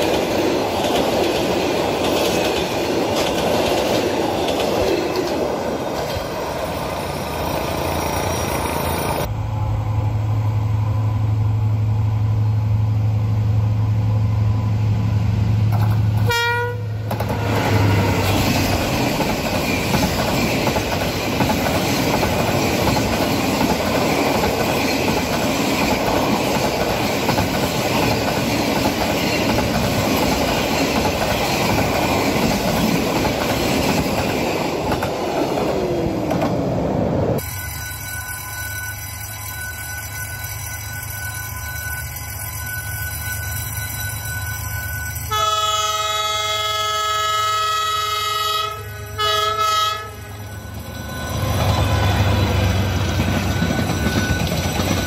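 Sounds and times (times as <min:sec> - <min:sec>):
passenger coaches rumbling past: 0:00.0 - 0:37.4, 0:45.2 - 0:55.0
distant locomotive horn: 0:16.2 - 0:18.2, 0:45.3 - 0:50.4
train wheels clattering over joints: 0:18.2 - 0:35.3.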